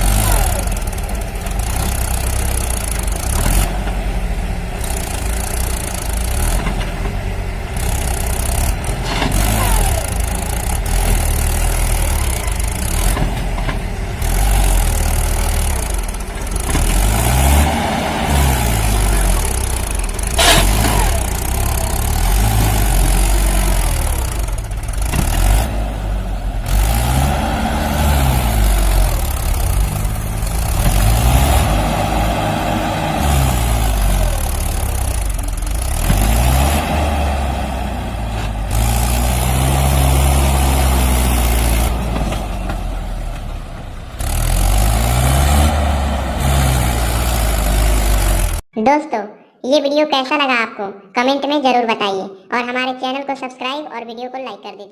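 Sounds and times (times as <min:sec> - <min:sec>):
vehicle engine revving: 0:00.0 - 0:48.7.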